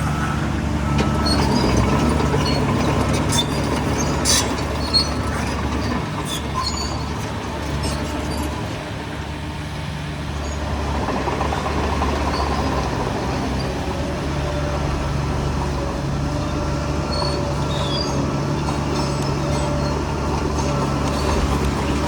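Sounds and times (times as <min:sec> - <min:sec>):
bulldozer diesel engine running: 0:00.0 - 0:22.0
high squeaks: 0:01.0 - 0:08.6, 0:16.5 - 0:22.0.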